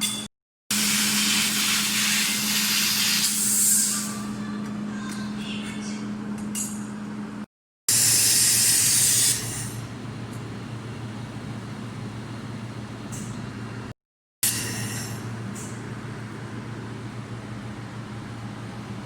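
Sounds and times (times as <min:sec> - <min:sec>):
low machine hum: 0:03.9 - 0:07.5, 0:09.4 - 0:13.9, 0:15.0 - 0:19.0.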